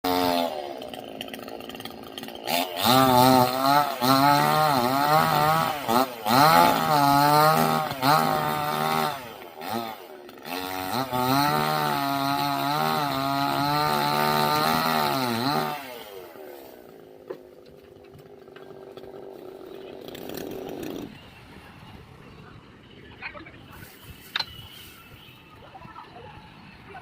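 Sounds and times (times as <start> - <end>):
chainsaw cutting at high revs: 0.0 - 21.2.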